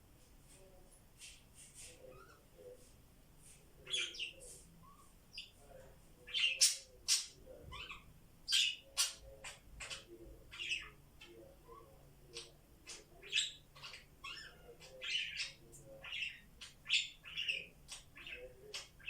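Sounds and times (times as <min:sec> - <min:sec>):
budgerigars chirping: 0:03.8 - 0:05.6, 0:06.3 - 0:19.0.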